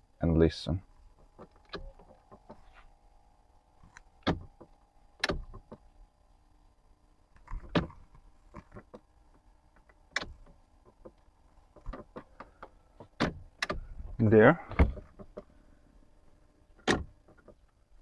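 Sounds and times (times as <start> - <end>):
faint electrical hum: 0.0 - 18.0
dashboard switch clicks: 3.9 - 5.8, 10.0 - 11.1.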